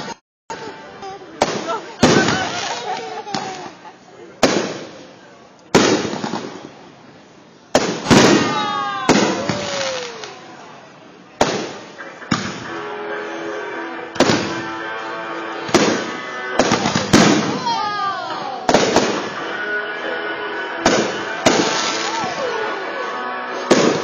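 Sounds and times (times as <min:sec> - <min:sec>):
firework shells booming: 0:01.4 - 0:03.6, 0:04.4 - 0:05.1, 0:05.7 - 0:06.8, 0:07.7 - 0:10.4, 0:11.4 - 0:12.9, 0:14.1 - 0:14.8, 0:15.6 - 0:17.7, 0:18.7 - 0:19.5, 0:20.8 - 0:22.4, 0:23.6 - 0:24.0
rumbling echo: 0:11.4 - 0:24.0.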